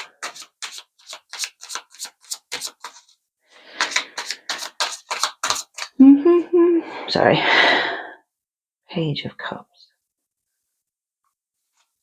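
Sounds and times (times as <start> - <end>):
cards being shuffled: 0.0 - 6.0.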